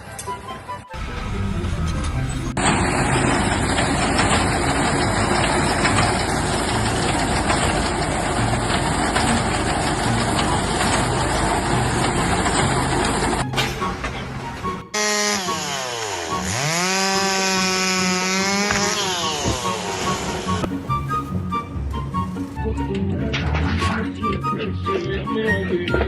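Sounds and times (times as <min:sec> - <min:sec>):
heavy engine running: 0:00.0 - 0:23.9.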